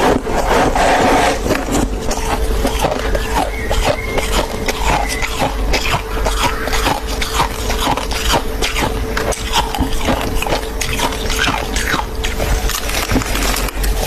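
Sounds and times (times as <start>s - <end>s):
crunching and chewing frost: 0.0s - 14.0s
steady hum: 0.0s - 14.0s.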